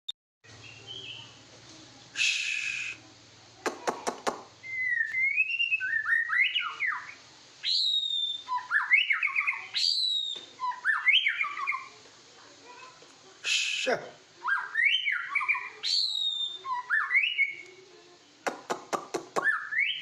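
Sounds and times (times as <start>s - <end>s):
bird singing whistled phrases: 0.5s - 1.2s, 2.1s - 3.0s, 4.6s - 11.9s, 13.4s - 17.8s, 19.3s - 20.0s.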